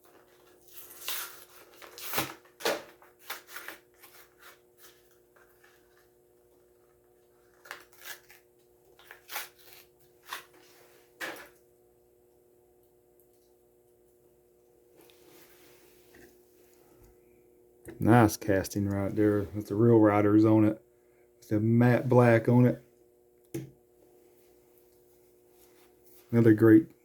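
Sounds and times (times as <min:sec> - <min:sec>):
packaging tearing and crinkling: 0:00.1 - 0:05.9, 0:07.3 - 0:10.6.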